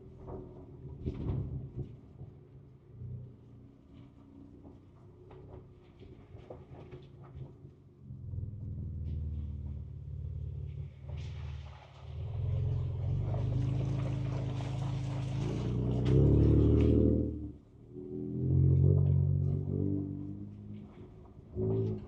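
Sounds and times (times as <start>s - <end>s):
engine running under load: 8.3s - 22.0s.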